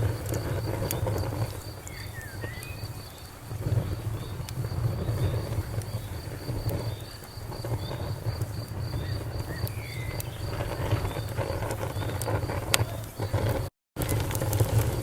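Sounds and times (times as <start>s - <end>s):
campfire rumble and crackles: 0.0s - 15.0s
crickets chirping: 0.0s - 15.0s
bird whistled note: 1.8s - 2.9s.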